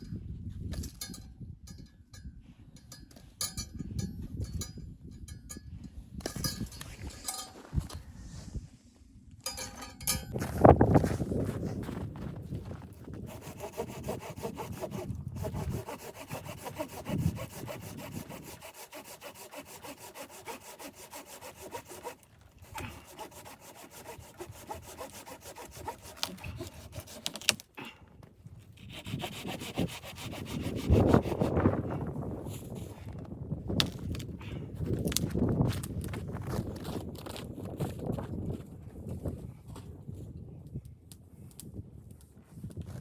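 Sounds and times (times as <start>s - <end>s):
hand saw cutting wood: 12.7s - 28.0s, 28.7s - 33.2s.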